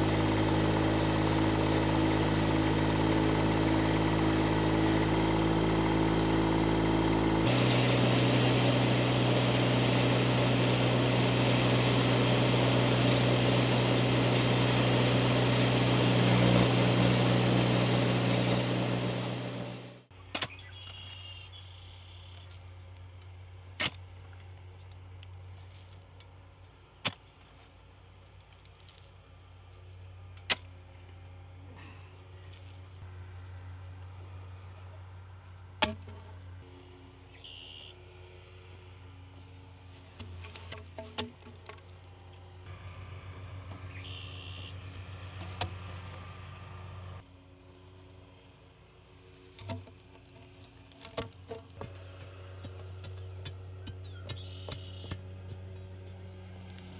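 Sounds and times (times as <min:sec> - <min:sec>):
motor running: 0:00.0 - 0:20.1.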